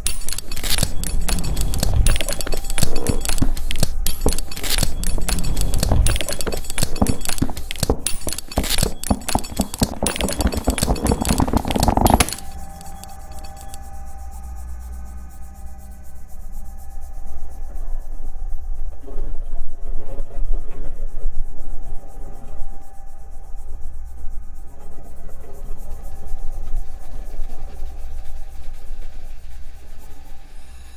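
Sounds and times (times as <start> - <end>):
fast clicks and taps: 0.0 - 13.8
steady held tone: 0.0 - 17.5.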